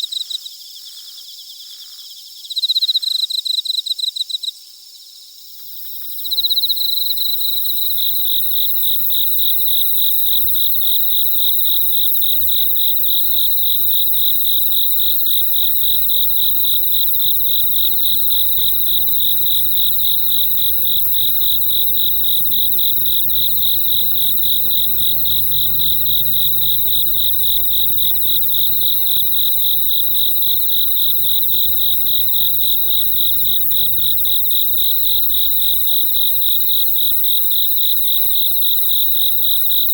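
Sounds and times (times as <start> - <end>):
crickets chirping: 4.1 - 39.9.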